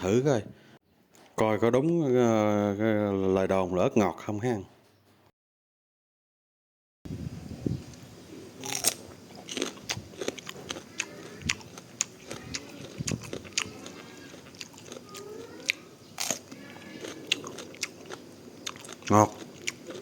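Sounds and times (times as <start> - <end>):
crisp crunching of chewing pepper: 8.6 - 20.0.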